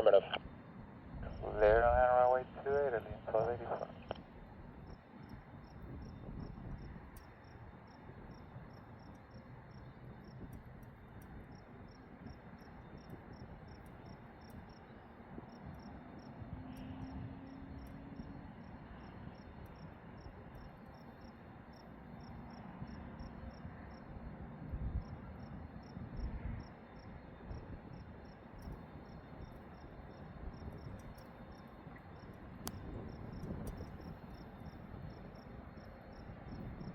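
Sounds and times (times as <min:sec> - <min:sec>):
crickets chirping: 0:00.0 - 0:36.9
low steady rumble: 0:01.1 - 0:07.4.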